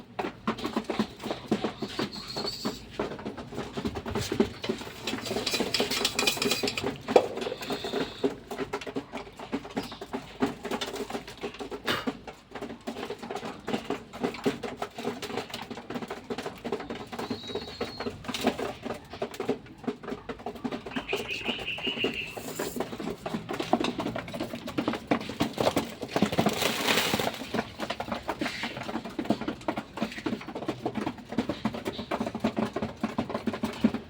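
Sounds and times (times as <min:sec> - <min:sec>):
pigeons pecking feed: 0:00.0 - 0:34.0
pigeons cooing: 0:01.0 - 0:08.4, 0:17.0 - 0:18.6, 0:20.5 - 0:25.8.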